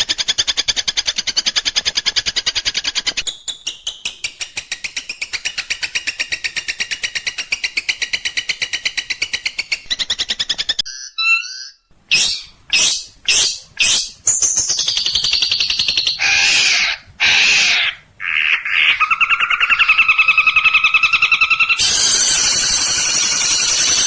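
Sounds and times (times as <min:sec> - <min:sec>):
shrike singing harsh song: 0:21.8 - 0:24.0.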